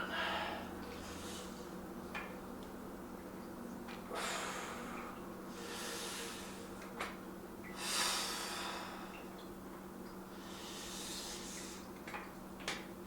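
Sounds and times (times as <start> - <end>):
man breathing hard: 4.1 - 5.0, 7.8 - 9.2, 10.4 - 11.8.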